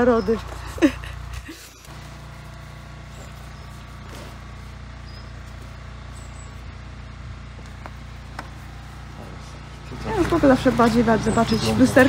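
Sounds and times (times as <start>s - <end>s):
car engine idling: 0.0s - 12.0s
faint bird chirps: 4.9s - 6.7s.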